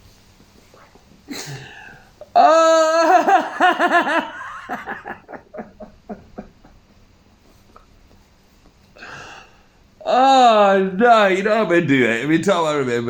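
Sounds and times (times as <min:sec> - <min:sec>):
man laughing: 0:02.4 - 0:06.8
short breath: 0:09.0 - 0:09.8.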